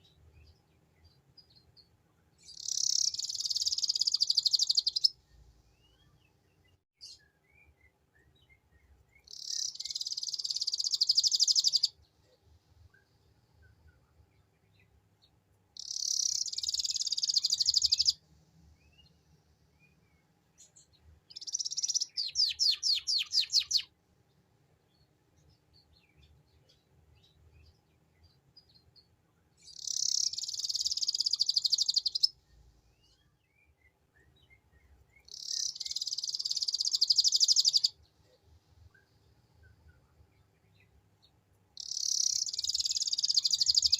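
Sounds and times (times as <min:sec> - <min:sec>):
faint bird chirps: 0:00.0 - 0:24.0, 0:24.8 - 0:43.9
canary trilling: 0:02.5 - 0:05.1, 0:09.3 - 0:11.9, 0:15.8 - 0:18.1, 0:21.4 - 0:23.9, 0:29.7 - 0:32.3, 0:35.3 - 0:37.9, 0:41.8 - 0:43.9.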